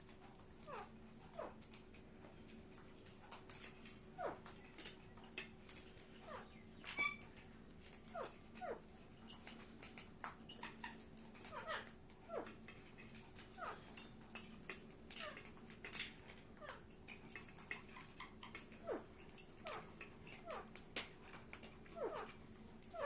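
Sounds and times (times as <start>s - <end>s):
faint steady hum: 0.0s - 23.0s
parakeet squeaky calls: 6.2s - 7.3s.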